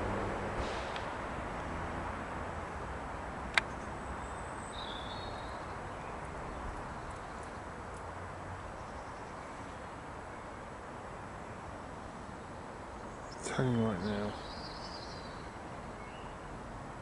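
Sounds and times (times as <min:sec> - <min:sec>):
outdoor background rumble: 0:00.0 - 0:17.0
sharp click: 0:03.5 - 0:03.8
high bird chirps: 0:03.7 - 0:06.2.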